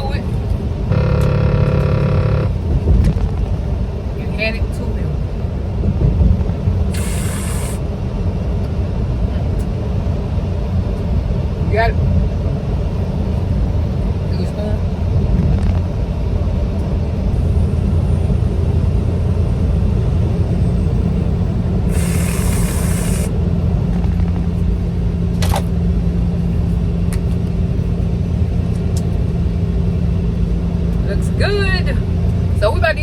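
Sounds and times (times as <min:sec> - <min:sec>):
constant hum: 0:00.0 - 0:33.0
truck engine and road noise: 0:00.0 - 0:33.0
short hiss: 0:06.9 - 0:07.8, 0:21.9 - 0:23.3.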